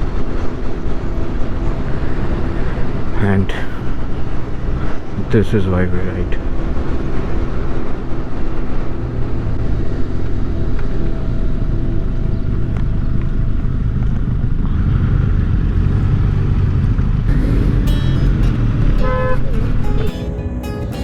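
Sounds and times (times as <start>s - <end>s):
motorcycle engine running: 6.5s - 21.0s.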